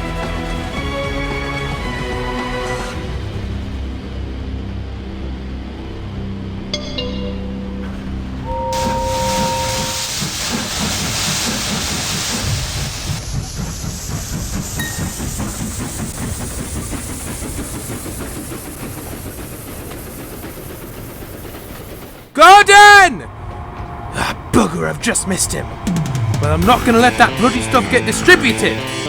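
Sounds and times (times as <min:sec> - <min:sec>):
steam locomotive chuffing: 0:00.0 - 0:04.9, 0:08.0 - 0:29.0
hissing steam: 0:08.7 - 0:22.3.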